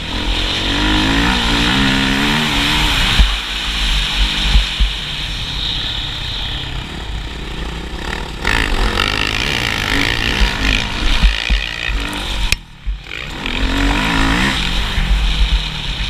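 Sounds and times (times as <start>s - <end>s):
motocross motorcycle engine revving: 0.0s - 5.4s, 6.6s - 16.0s.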